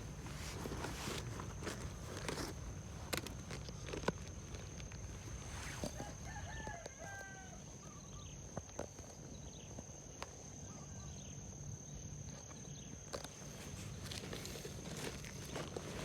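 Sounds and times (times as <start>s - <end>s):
faint rooster crowing: 5.8s - 8.3s.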